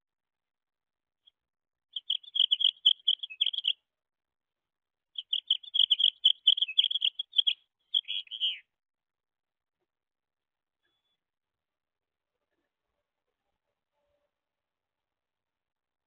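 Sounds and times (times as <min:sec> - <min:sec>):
songbird rapid chirps: 0:01.9 - 0:03.8, 0:05.2 - 0:08.7.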